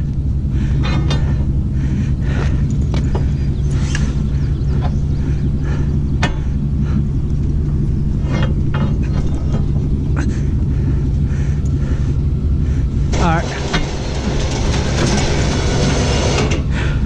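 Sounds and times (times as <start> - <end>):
vehicle engine idling: 0.0 - 17.0
metallic clanks and knocks: 0.8 - 1.5, 6.2 - 6.7, 7.4 - 10.1, 13.1 - 16.7.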